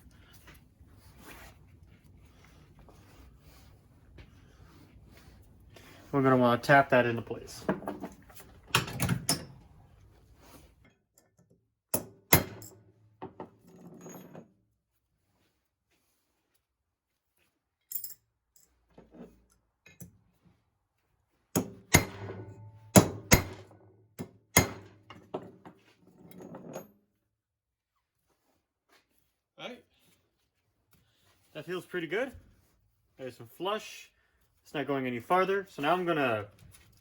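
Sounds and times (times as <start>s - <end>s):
hammer knocking on metal part: 21.6s - 23.6s.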